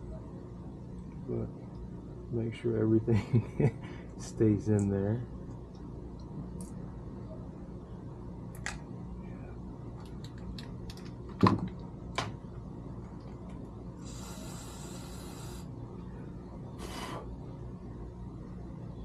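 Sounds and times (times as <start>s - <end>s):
aerosol spray hissing: 14.0s - 15.7s.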